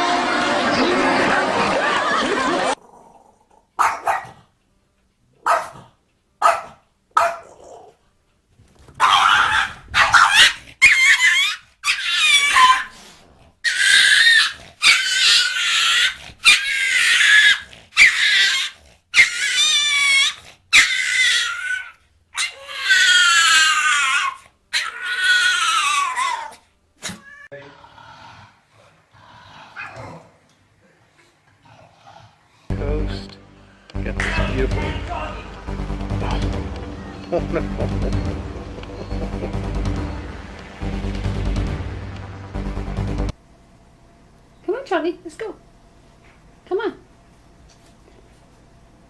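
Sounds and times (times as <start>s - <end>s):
dog barking: 3.8s - 4.4s, 5.4s - 7.9s, 9.0s - 12.0s
dog yelping high-pitched: 3.8s - 4.4s, 5.4s - 5.8s, 6.4s - 7.5s, 9.0s - 13.0s, 13.6s - 26.6s.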